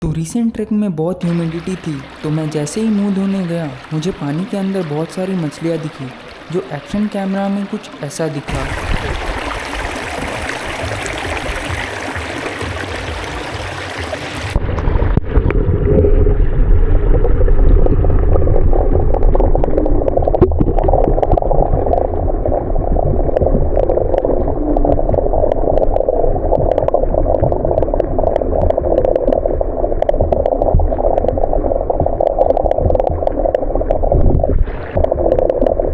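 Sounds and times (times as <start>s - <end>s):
stream water rushing: 1.2s - 14.6s
muffled underwater rumble and gurgle: 1.2s - 35.9s.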